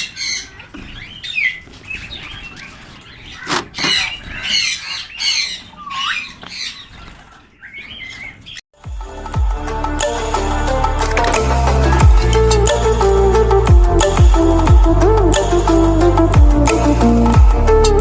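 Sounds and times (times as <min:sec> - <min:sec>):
sparrows chirping and chattering: 0:00.0 - 0:08.6.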